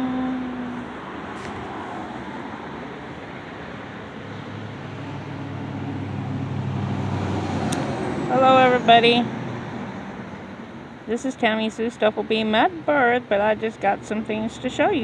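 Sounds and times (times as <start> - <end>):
road and wind noise: 0.0 - 15.0
vehicle engine hum: 0.0 - 15.0.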